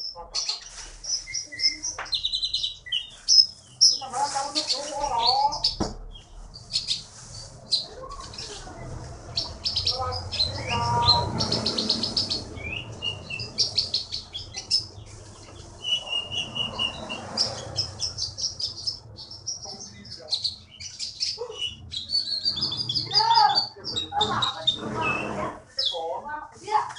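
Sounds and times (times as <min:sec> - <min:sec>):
songbird singing: 0:00.0 - 0:26.2.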